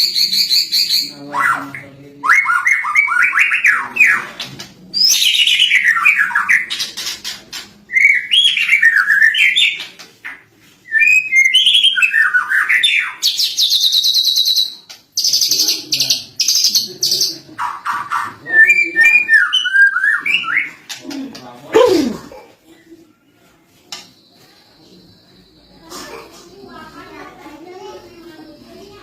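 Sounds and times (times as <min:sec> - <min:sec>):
bird singing chattering trills: 0:11.0 - 0:21.0.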